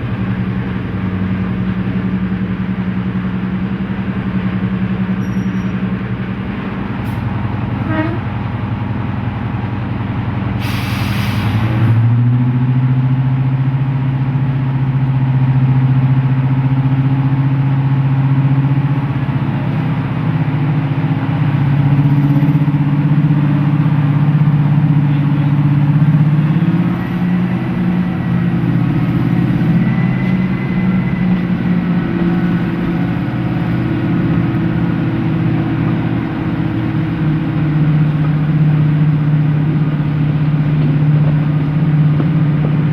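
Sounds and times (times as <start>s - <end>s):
diesel engines working under load: 0.0s - 42.9s
brief hiss: 10.6s - 11.8s.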